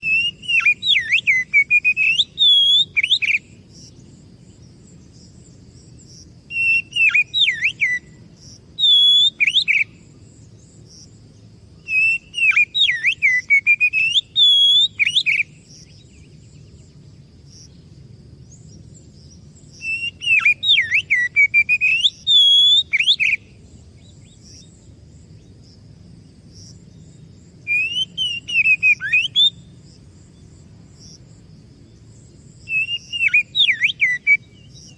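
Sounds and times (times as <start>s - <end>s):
bird singing rapid whistles: 0.0s - 4.0s, 6.5s - 8.2s, 8.8s - 10.0s, 11.8s - 16.3s, 19.6s - 23.6s, 27.7s - 29.8s, 32.6s - 34.9s
low background noise: 0.0s - 34.9s.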